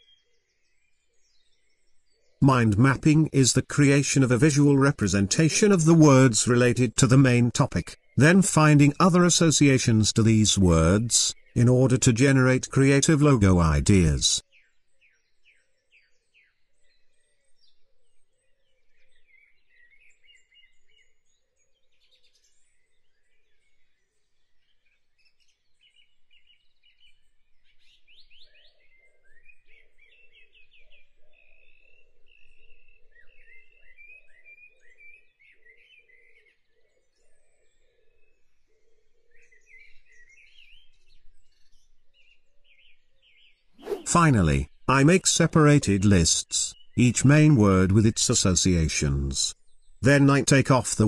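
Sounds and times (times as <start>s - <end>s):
birds chirping: 42.6s - 48.8s.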